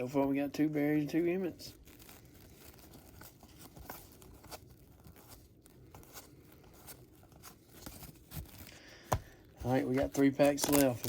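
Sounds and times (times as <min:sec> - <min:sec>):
rustling of card packs: 0:00.0 - 0:11.0
wrapper tearing: 0:01.5 - 0:08.8, 0:09.7 - 0:11.0.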